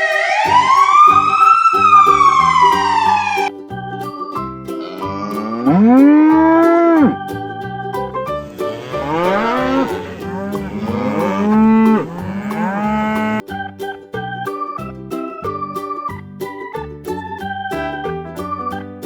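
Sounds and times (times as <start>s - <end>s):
light keyboard tune: 0.0s - 19.0s
cows mooing: 8.7s - 13.4s.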